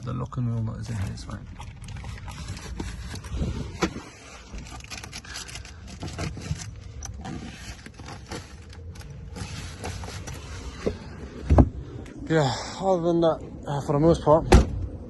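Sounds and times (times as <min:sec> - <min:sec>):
rummaging through a bag: 0:00.6 - 0:11.2.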